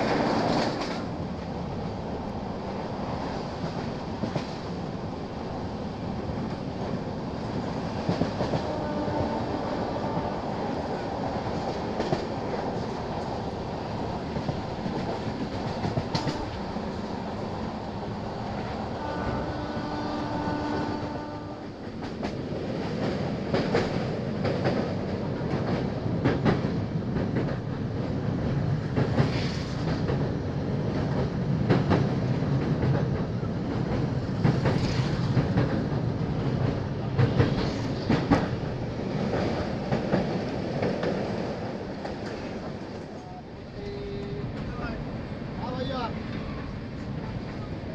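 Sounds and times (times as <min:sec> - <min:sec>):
wheels clacking over rail joints: 0:00.0 - 0:01.5, 0:11.0 - 0:43.2
train wheels rumbling on track: 0:00.0 - 0:47.9.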